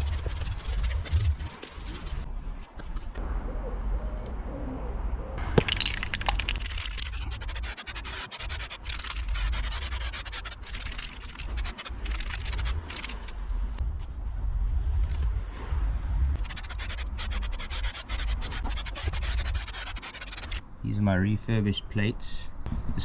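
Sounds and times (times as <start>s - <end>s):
abrasive scraping of rust: 5.6s - 13.4s, 16.4s - 20.6s.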